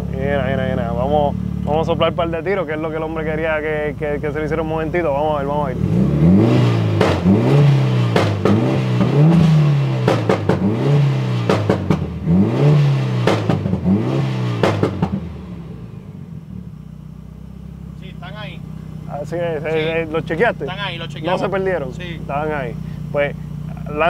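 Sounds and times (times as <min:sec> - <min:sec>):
car engine idling: 0:00.0 - 0:24.0
car engine revving: 0:00.0 - 0:24.0
exhaust pops and bangs: 0:06.9 - 0:15.4.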